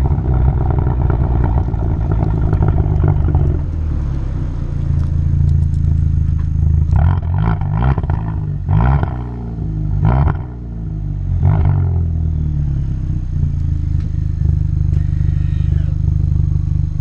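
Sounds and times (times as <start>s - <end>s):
car exhaust idling and revving: 0.0s - 17.0s.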